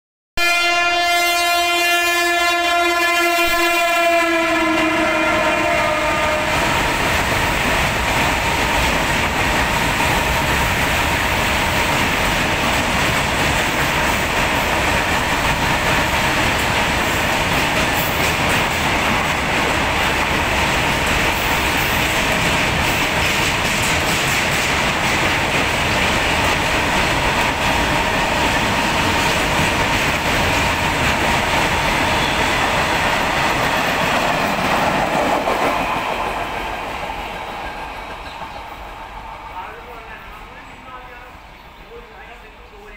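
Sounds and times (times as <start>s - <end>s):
locomotive air horn blast: 0.4s - 6.8s.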